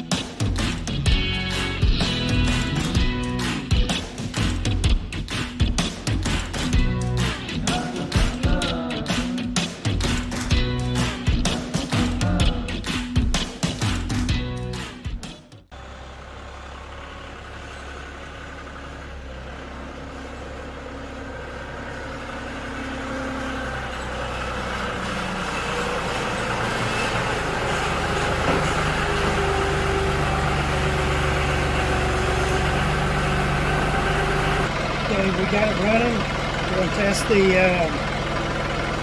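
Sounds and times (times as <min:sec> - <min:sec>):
tractor diesel engine idling: 0:15.7 - 0:39.0.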